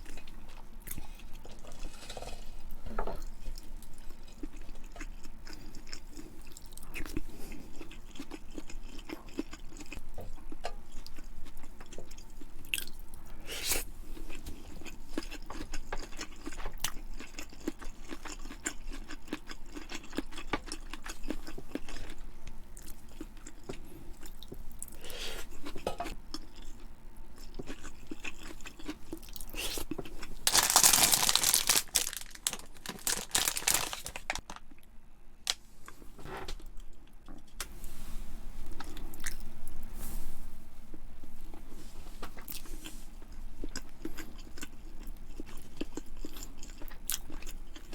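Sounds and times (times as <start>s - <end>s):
person chewing crunchy food: 3.2s - 34.6s, 38.7s - 39.9s, 42.4s - 47.9s.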